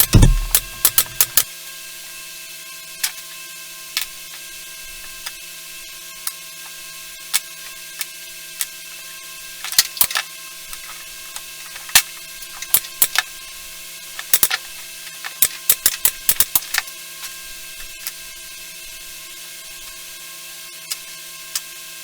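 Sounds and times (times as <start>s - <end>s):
sharp clicks and taps: 0.0s - 1.4s
steady electrical hum: 0.0s - 1.4s.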